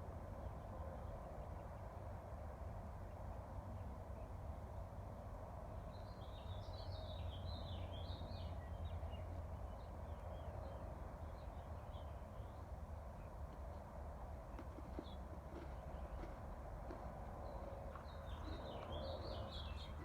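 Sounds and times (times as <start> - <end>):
low rumble of breeze: 0.0 - 20.0
songbird chirping: 5.9 - 20.0.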